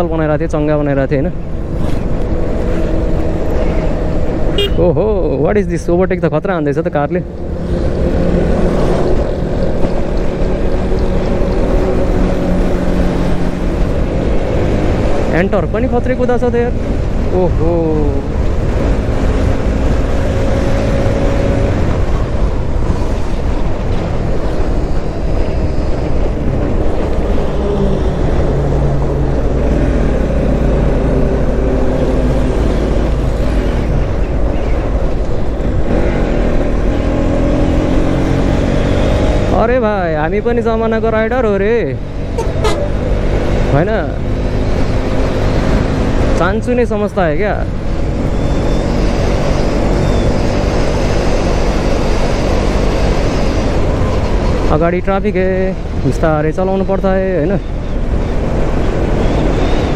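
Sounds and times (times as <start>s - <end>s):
wind rushing over microphone: 0.0s - 59.9s
motorcycle engine running: 2.2s - 5.1s.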